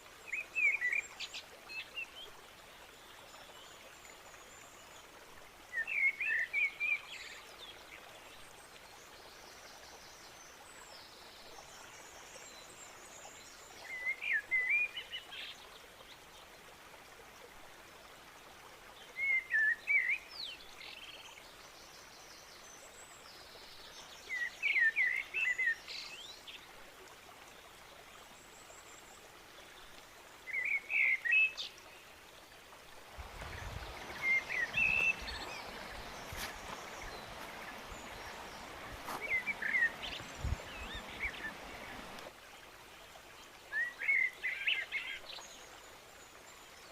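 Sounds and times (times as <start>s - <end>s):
faint background hiss: 0.0s - 46.9s
songbird chirping: 27.4s - 46.9s.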